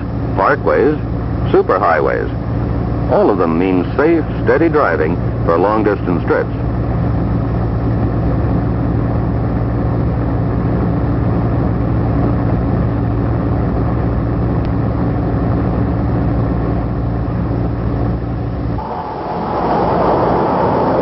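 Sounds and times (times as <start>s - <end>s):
truck engine droning: 16.0s - 21.0s.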